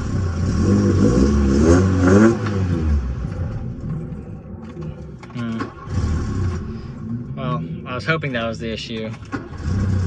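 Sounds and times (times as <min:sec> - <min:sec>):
car engine running roughly and stalling: 0:03.2 - 0:07.6, 0:08.3 - 0:10.0.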